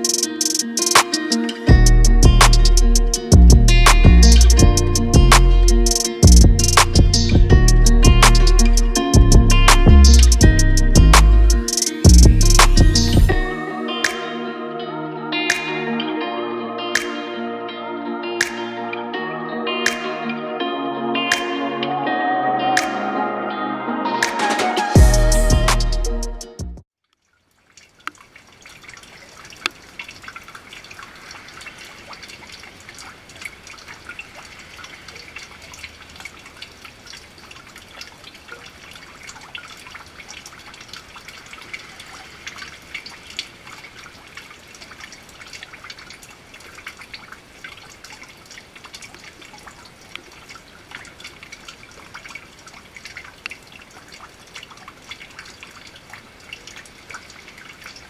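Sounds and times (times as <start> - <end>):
rain dripping and pattering: 0.0 - 13.6, 27.0 - 58.0.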